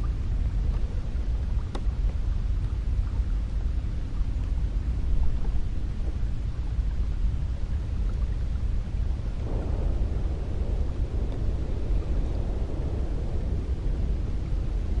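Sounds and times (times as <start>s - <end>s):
deep rush of wind: 0.0s - 15.0s
faint tick: 1.6s - 3.7s, 4.4s - 4.6s, 11.3s - 11.5s.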